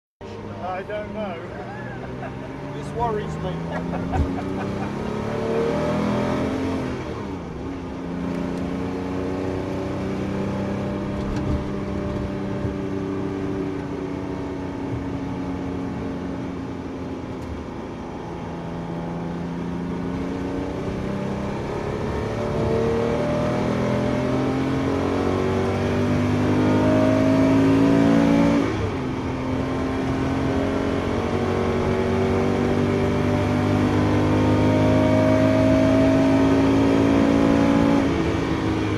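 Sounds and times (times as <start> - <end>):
car engine accelerating: 0.2 - 38.9.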